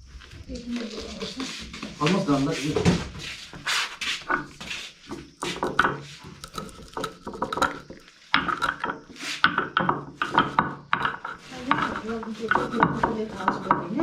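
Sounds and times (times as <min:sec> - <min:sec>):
utensils clinking against pots: 0:05.4 - 0:14.0.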